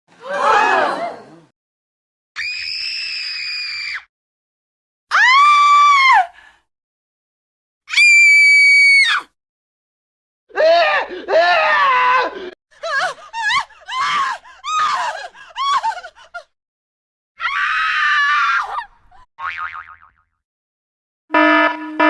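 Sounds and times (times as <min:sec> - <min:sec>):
person screaming: 0:10.5 - 0:12.6.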